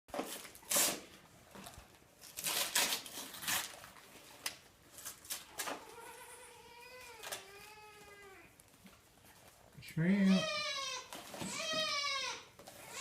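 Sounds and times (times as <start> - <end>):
wrapping paper rustling and tearing: 0.1 - 5.8.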